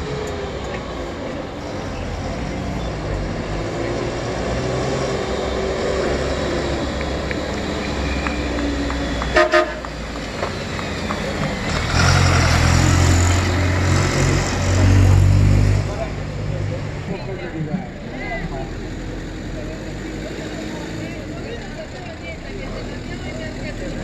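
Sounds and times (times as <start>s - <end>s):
heavy engine: 0.0s - 24.0s
race vehicle engines running: 0.0s - 24.0s
vehicle horn toots: 9.3s - 10.0s.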